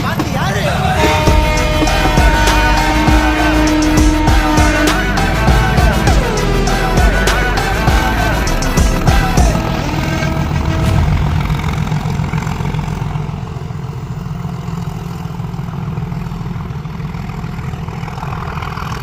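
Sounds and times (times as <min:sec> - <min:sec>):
locomotive engine idling: 0:00.0 - 0:19.0.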